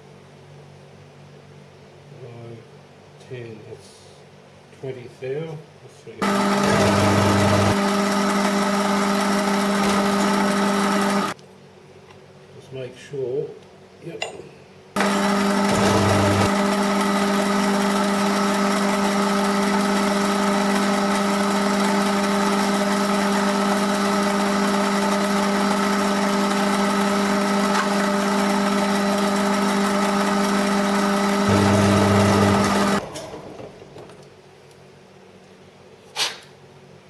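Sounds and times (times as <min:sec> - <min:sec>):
machine tool motor humming: 0:06.2 - 0:11.4, 0:15.0 - 0:33.8.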